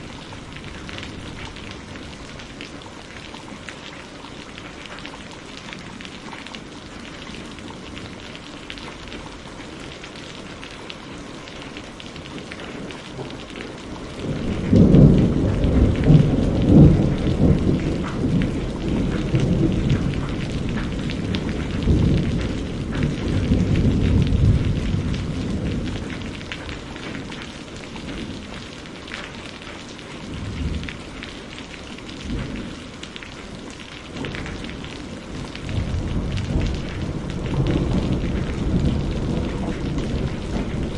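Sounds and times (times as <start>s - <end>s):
steady rain falling: 0.0s - 40.9s
thunder rumbling: 13.2s - 27.4s, 34.1s - 40.9s.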